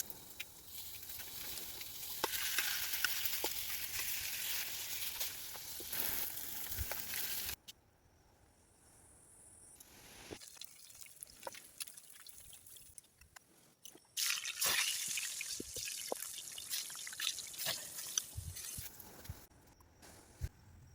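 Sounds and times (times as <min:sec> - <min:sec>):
liquid dripping and trickling: 0:10.4 - 0:13.0, 0:14.2 - 0:18.8.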